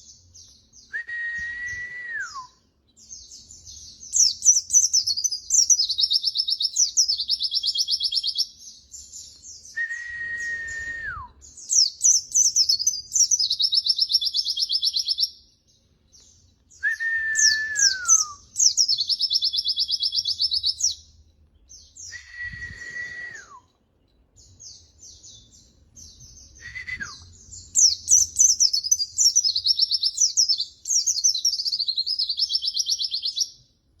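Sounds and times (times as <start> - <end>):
low sliding whistle: 1.0 - 2.5, 9.8 - 11.3, 16.8 - 18.4, 22.1 - 23.7
bird chirps and trills: 2.9 - 9.8, 11.4 - 16.8, 17.4 - 22.1, 27.2 - 33.7.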